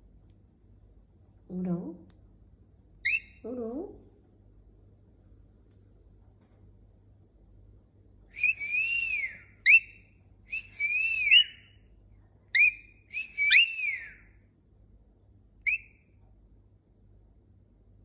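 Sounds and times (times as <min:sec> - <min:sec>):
cockatiel whistling: 0:03.0 - 0:03.4, 0:08.4 - 0:11.7, 0:12.6 - 0:14.2, 0:15.6 - 0:16.0
sharp upward chirps: 0:03.1 - 0:03.3.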